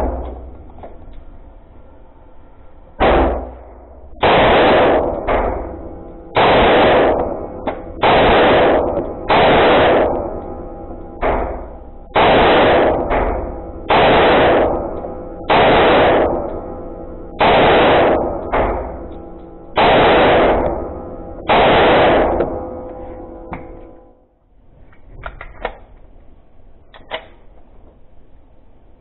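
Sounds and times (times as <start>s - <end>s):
pistol shots with reverberation: 3.0s - 10.6s, 11.2s - 22.8s.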